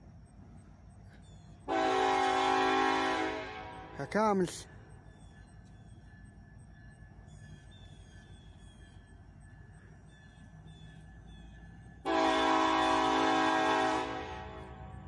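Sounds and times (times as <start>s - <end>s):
locomotive air horn chord: 1.7s - 4.2s, 12.0s - 15.0s.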